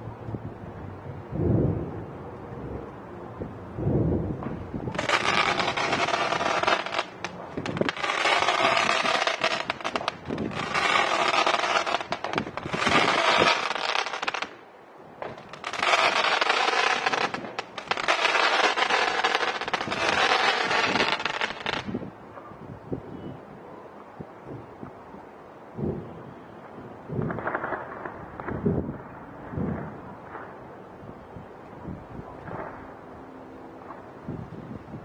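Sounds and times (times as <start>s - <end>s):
fireworks crackling: 4.8s - 22.1s.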